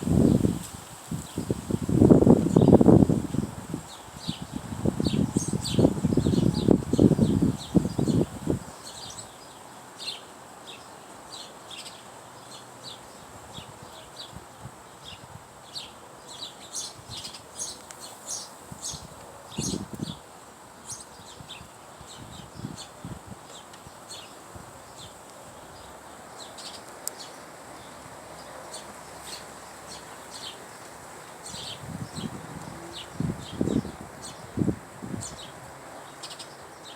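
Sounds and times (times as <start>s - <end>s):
songbirds chirping: 0.0s - 36.9s.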